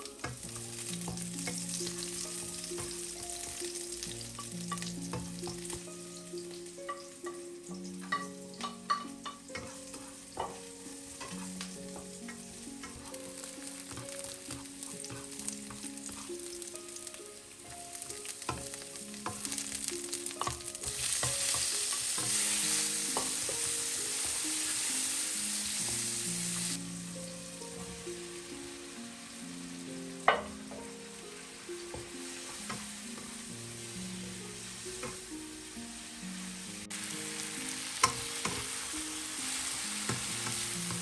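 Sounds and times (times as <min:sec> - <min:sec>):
garlic sizzling in hot oil: 0:00.0 - 0:41.0
spatula knocking against pan: 0:10.4 - 0:13.1.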